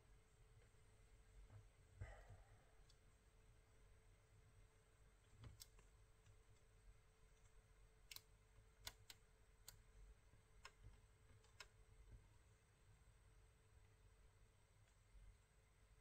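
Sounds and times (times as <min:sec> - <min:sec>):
faint steady hum: 0:00.0 - 0:16.0
faint sharp clicks: 0:05.2 - 0:06.7, 0:07.4 - 0:09.8.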